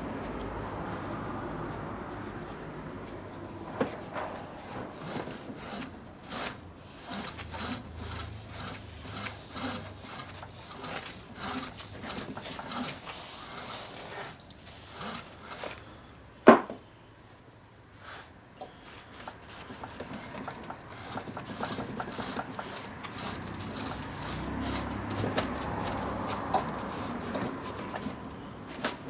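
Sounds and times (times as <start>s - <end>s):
abrasive scrubbing metal: 19.6s - 28.3s.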